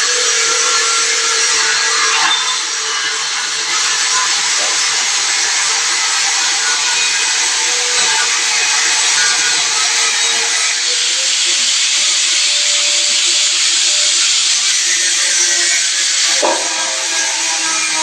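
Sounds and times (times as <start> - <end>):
machine hissing: 0.0 - 18.0.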